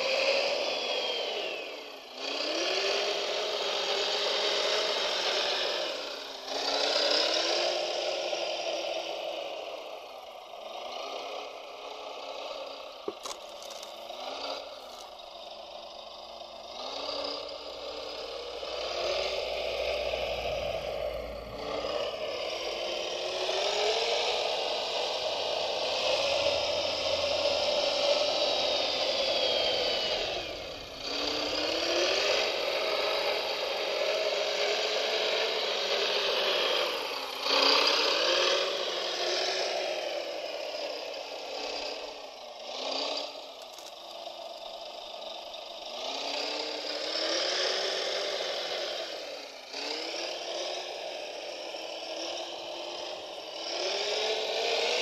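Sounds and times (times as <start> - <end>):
small electric motors whining: 0.0 - 55.0
rattling and scraping parts: 13.0 - 15.2.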